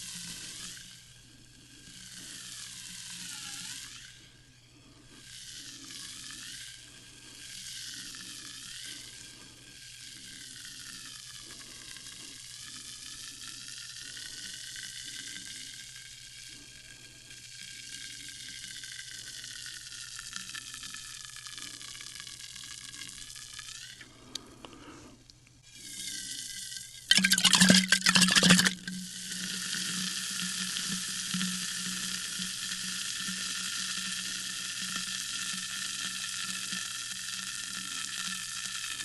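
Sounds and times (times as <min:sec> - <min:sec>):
sparkling water fizzing: 0:27.1 - 0:28.8.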